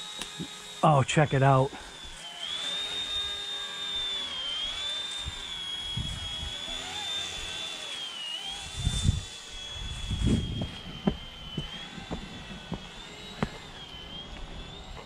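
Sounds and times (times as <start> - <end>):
toy helicopter motor whining: 0.0 - 15.0
low thuds: 10.1 - 13.6.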